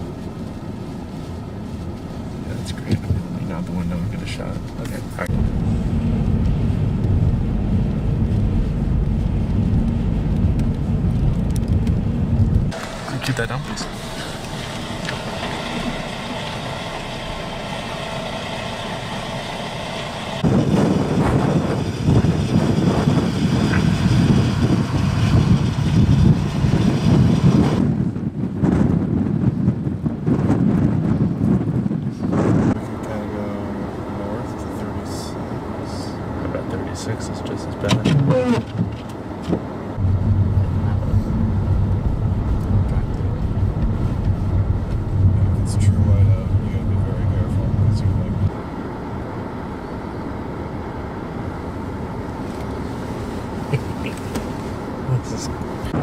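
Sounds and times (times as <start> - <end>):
vehicle engine idling: 0.0 - 21.7, 39.9 - 56.0
wind buffeting microphone: 0.0 - 34.4, 38.2 - 48.6, 49.6 - 56.0
wind rushing hiss: 11.9 - 29.6.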